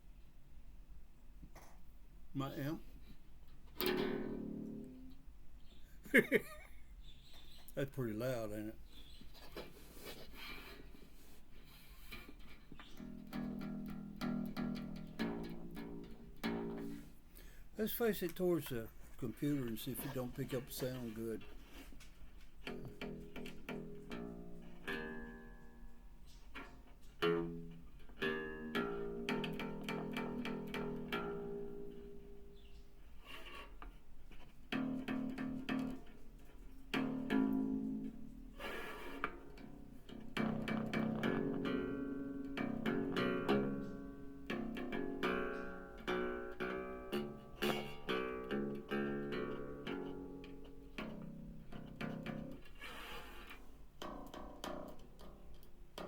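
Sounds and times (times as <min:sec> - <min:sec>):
bass guitar picked notes: 0:27.2 - 0:32.6.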